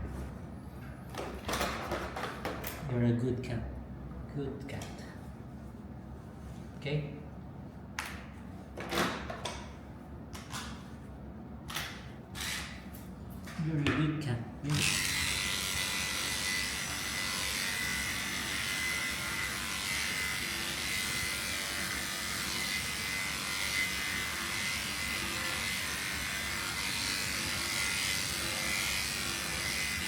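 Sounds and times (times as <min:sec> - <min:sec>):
electric clippers whining: 0:11.7 - 0:12.8, 0:14.7 - 0:30.0.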